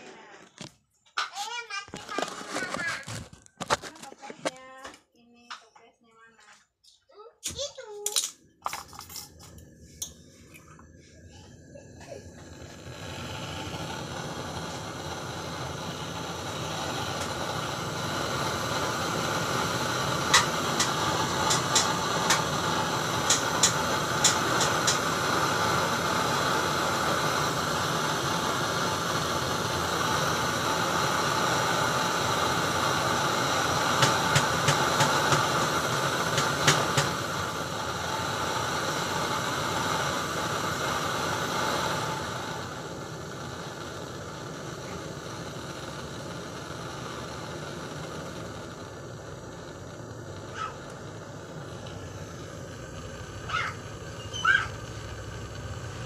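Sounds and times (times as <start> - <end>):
loud steady hiss: 11.9 - 56.0.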